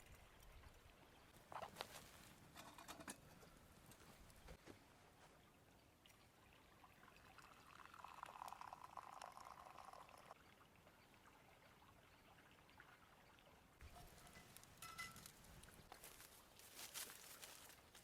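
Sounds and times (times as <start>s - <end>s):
liquid being poured: 6.5s - 10.4s.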